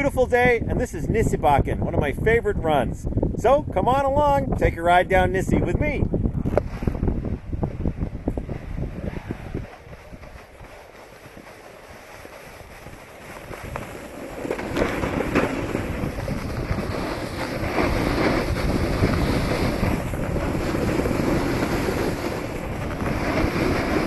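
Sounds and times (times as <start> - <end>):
wind buffeting microphone: 0.0 - 24.0
skis scraping over packed snow: 6.6 - 24.0.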